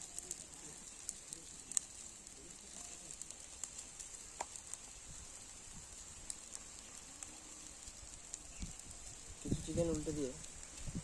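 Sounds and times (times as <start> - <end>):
crackles and pops: 0.0 - 11.0
food sizzling on a grill: 0.0 - 11.0.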